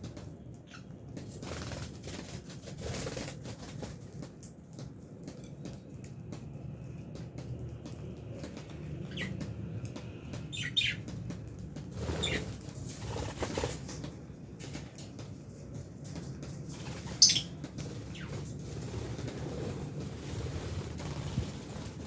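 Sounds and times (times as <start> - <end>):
wing flapping: 1.1 - 4.4, 10.8 - 15.4, 16.2 - 22.0
lovebirds chirping: 9.1 - 9.4, 10.5 - 11.0, 16.9 - 18.4.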